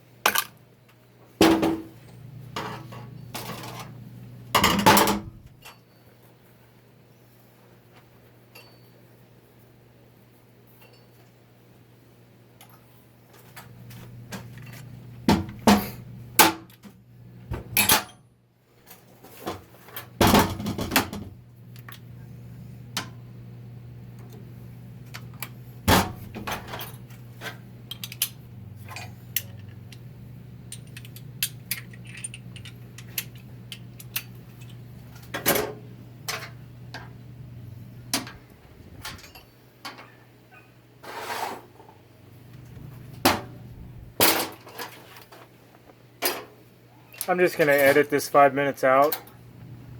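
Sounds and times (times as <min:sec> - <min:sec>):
steady low hum: 0:01.4 - 0:06.1, 0:20.2 - 0:41.0, 0:41.8 - 0:44.6, 0:46.6 - 0:49.9
metal parts and tools clinking: 0:27.9 - 0:30.0, 0:30.7 - 0:34.8.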